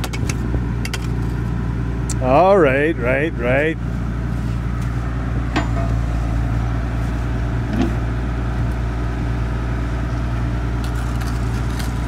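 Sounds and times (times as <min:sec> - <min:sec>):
engine droning: 0:00.0 - 0:12.0
metal gear knocks: 0:05.5 - 0:06.0.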